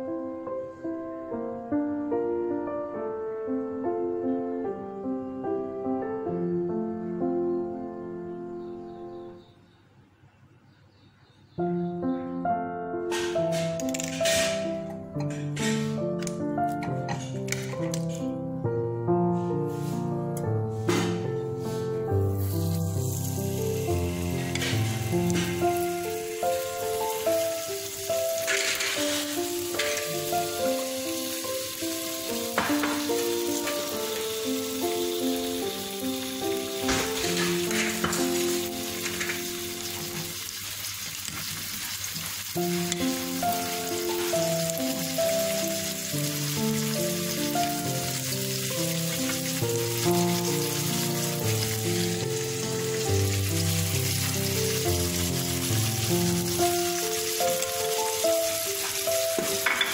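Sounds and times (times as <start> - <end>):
background music: 11.6 - 40.4, 42.6 - 59.9
chicken sizzling on a grill pan: 22.4 - 59.9.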